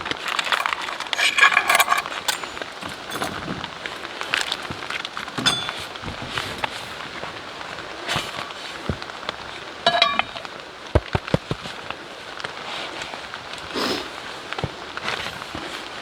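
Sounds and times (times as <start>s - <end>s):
wood fire crackling in stove: 0.0s - 10.5s.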